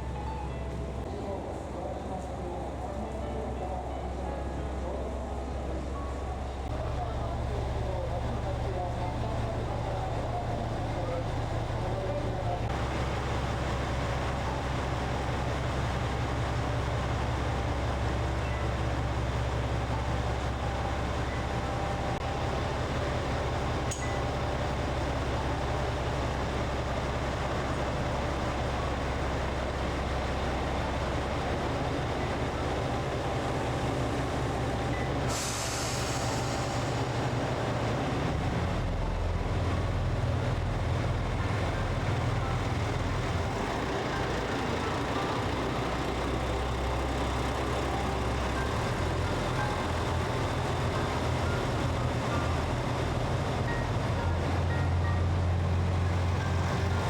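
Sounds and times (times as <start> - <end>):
diesel train engines running: 0.0 - 57.0
air hiss: 35.3 - 37.2.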